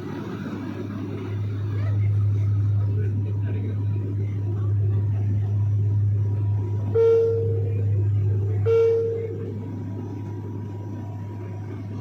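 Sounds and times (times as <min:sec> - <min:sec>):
airplane engine drone: 0:00.0 - 0:12.0
electronic beep tones: 0:05.5 - 0:09.5.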